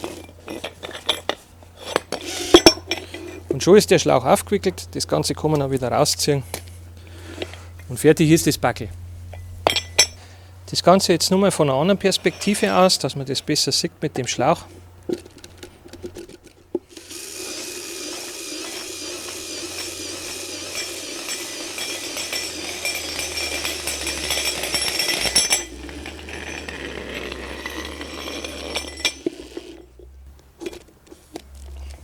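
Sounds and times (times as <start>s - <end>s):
hose rattling and scraping: 0.0s - 4.0s, 10.9s - 13.7s, 14.4s - 32.0s
cordless drill running: 16.9s - 29.8s.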